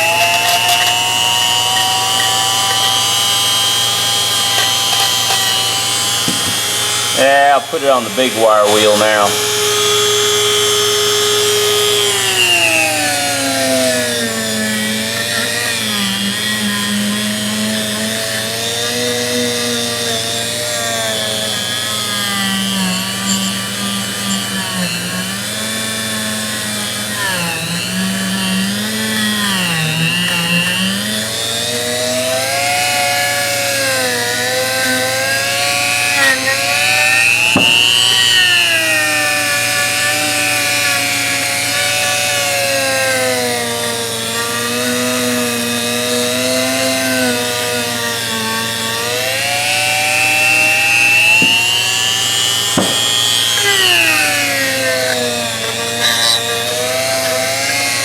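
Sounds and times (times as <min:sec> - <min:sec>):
wire wheel brushing metal: 0:00.0 - 0:08.2, 0:11.4 - 0:25.4, 0:33.9 - 0:58.0.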